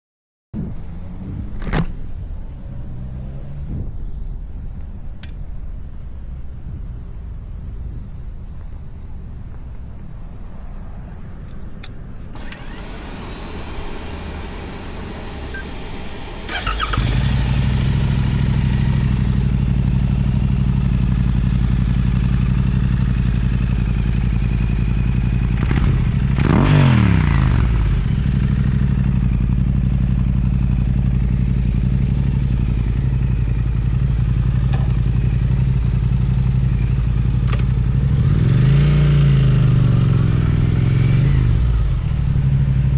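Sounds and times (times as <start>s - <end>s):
motorcycle starting and idling: 12.3s - 42.9s.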